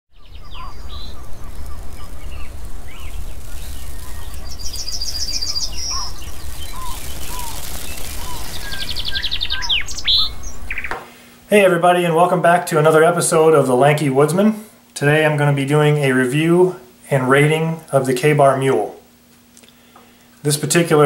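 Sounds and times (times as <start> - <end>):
birds chirping: 0.1 - 11.3
steady low rumble: 0.2 - 10.9
rapid high trill: 1.2 - 10.8.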